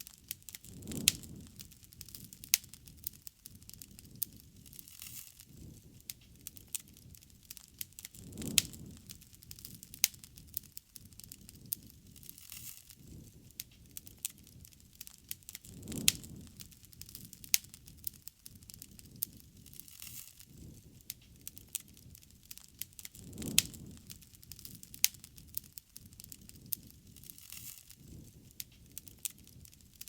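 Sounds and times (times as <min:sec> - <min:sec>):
bonfire crackling: 0:00.0 - 0:30.0
loud pops over low rumble: 0:00.5 - 0:04.8, 0:05.5 - 0:12.4, 0:15.4 - 0:19.8, 0:20.5 - 0:27.4.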